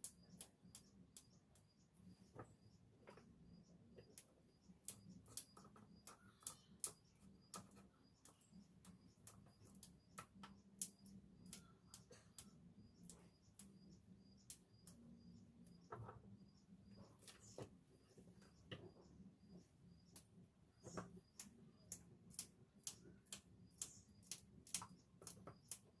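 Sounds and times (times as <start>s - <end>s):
light clicks and taps: 4.0s - 15.0s.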